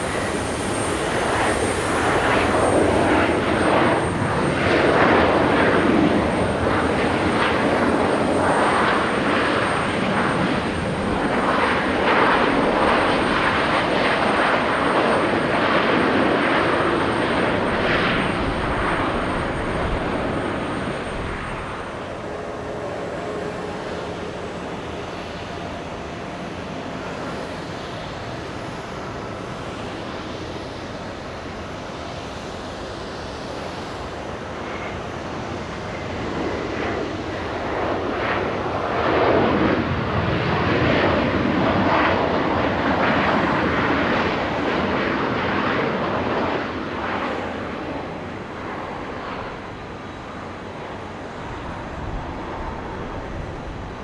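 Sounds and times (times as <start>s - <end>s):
jet engines roaring past: 0.0s - 54.0s.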